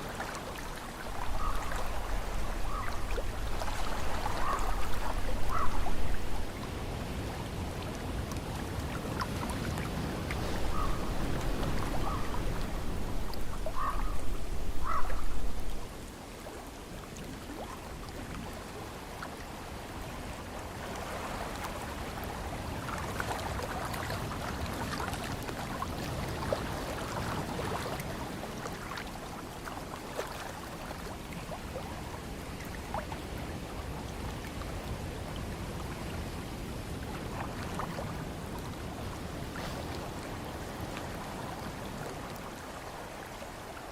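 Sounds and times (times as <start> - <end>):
ocean surf: 0.0 - 16.3, 30.9 - 43.9
wind: 0.0 - 43.9.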